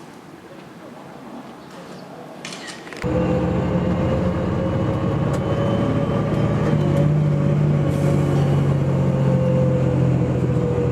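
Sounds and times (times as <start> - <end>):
bus engine running: 3.0 - 10.9.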